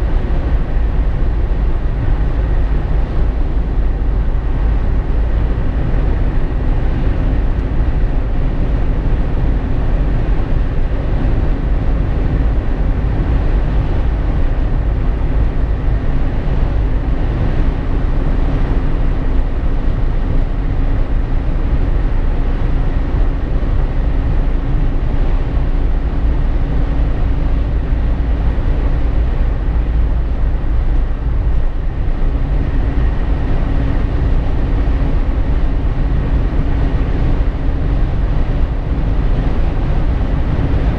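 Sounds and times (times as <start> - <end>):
faint engine hum: 0.0 - 40.9
tyre and wind rumble: 0.0 - 40.9.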